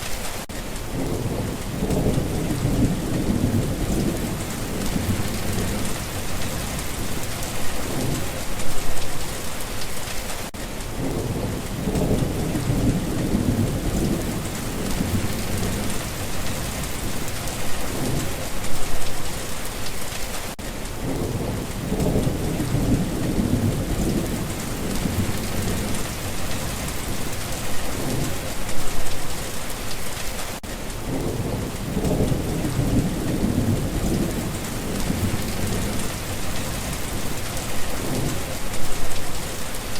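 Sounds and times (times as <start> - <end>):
rain hissing: 0.0 - 39.9
low thunder rumbles: 0.8 - 9.3, 10.9 - 19.3, 21.0 - 29.3, 31.0 - 39.6.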